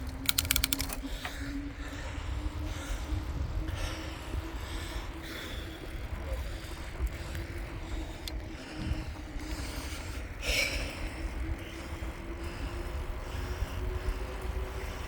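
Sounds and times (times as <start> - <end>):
sharp click: 0.0 - 1.0
steady low hum: 0.0 - 15.0
wind rumbling on microphone: 0.0 - 15.0.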